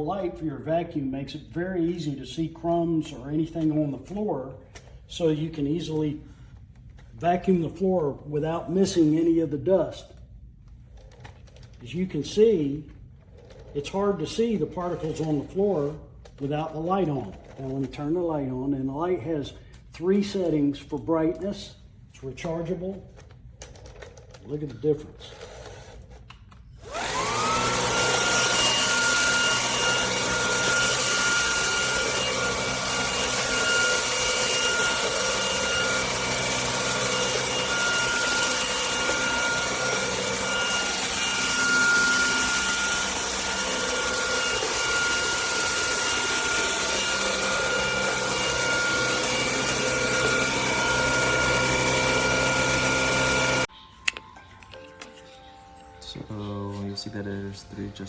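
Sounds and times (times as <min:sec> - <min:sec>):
stick vacuum whining: 0:22.6 - 0:54.2.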